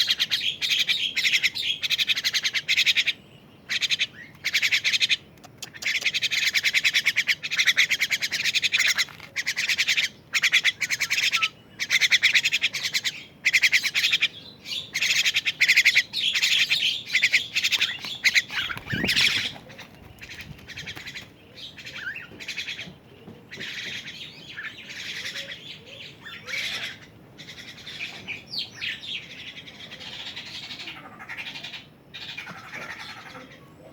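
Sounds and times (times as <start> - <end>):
bird chick raspy chirps: 0.0 - 22.9.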